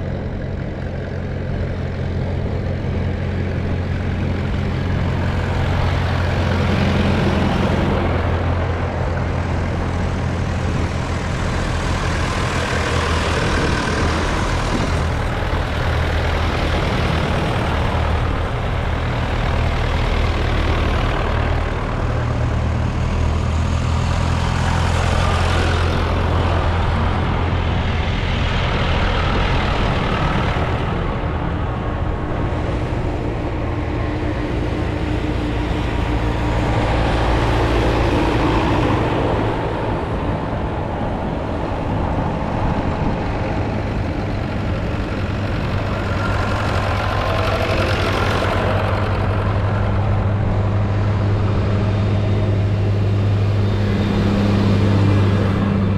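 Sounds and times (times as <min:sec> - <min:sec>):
tractor diesel engine droning: 0:00.0 - 0:55.9
vehicles passing: 0:00.0 - 0:55.9.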